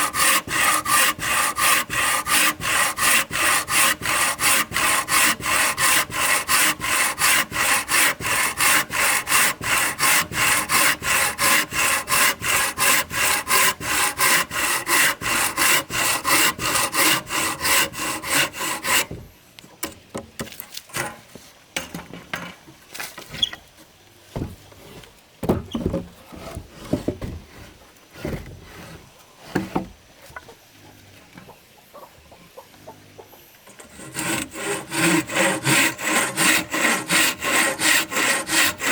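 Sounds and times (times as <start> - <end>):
hand saw cutting wood: 0.0 - 19.3, 20.9 - 21.2, 33.7 - 38.9.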